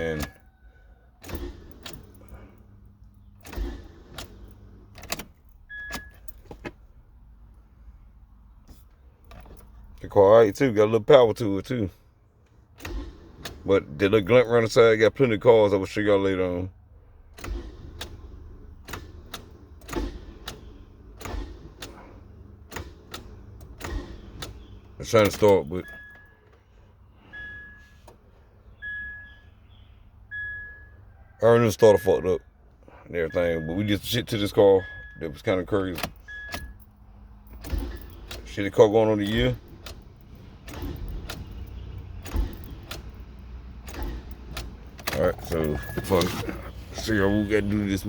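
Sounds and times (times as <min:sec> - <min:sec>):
car keys jangling: 0:01.2 - 0:07.1, 0:08.7 - 0:10.7, 0:34.8 - 0:48.0.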